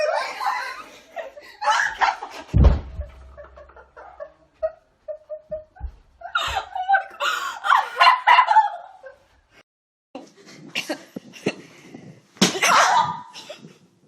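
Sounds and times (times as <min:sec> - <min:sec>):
people laughing: 0:00.0 - 0:09.2
heavy thump: 0:02.5 - 0:03.8.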